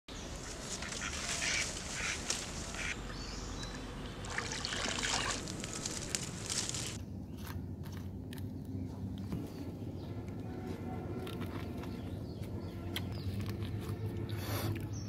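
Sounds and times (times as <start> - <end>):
duck quacking: 0.8 - 3.0.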